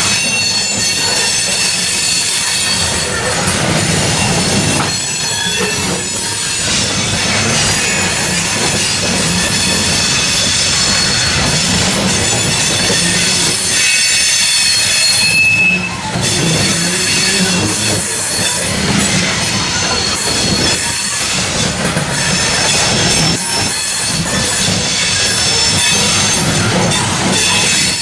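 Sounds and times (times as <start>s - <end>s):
high-pitched wheel squeal: 0.0s - 21.6s
train wheels rumbling on rails: 0.0s - 28.0s.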